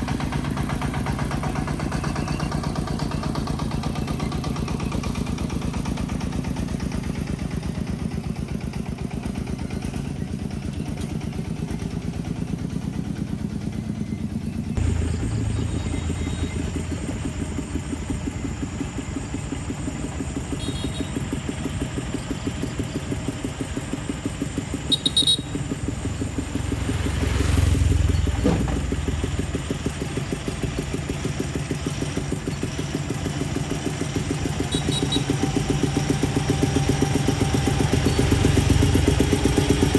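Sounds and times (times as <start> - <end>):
farm vehicle engine running: 0.0 - 39.9
short clatter: 28.0 - 29.5.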